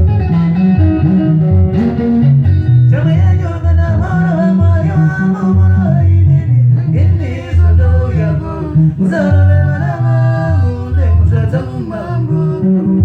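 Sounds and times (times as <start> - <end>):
guitars: 0.0 - 13.0
pulsing bass guitar: 0.0 - 13.0
man singing: 2.9 - 13.0.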